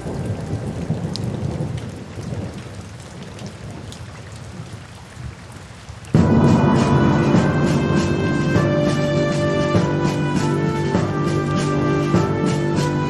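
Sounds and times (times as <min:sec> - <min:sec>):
low rumble of thunder: 0:00.0 - 0:02.9, 0:06.2 - 0:13.0
steady rain: 0:00.0 - 0:13.0
loud music: 0:06.2 - 0:13.0.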